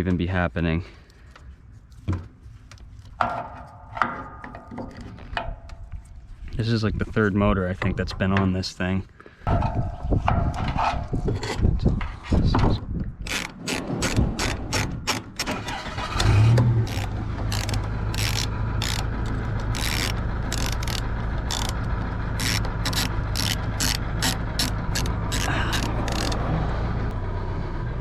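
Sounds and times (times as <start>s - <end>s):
hand tools clicking and knocking: 13.2s - 15.6s, 16.5s - 26.4s
engine starting and idling: 13.3s - 28.0s.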